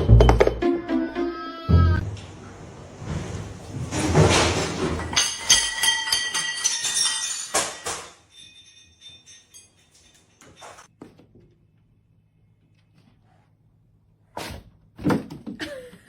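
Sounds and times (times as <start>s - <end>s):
small bells jingling: 5.1s - 10.9s.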